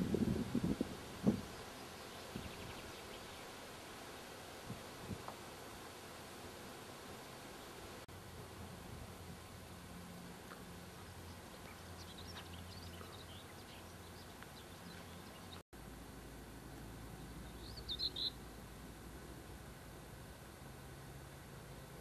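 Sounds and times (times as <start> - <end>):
low hum: 0.0 - 22.0
steady hiss: 0.0 - 22.0
small birds chirping: 1.3 - 3.6, 10.4 - 15.6, 17.2 - 18.4.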